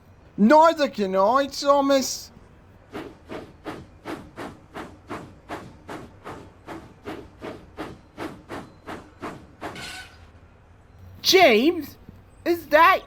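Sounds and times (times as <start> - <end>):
steam locomotive chuffing: 2.8 - 10.2.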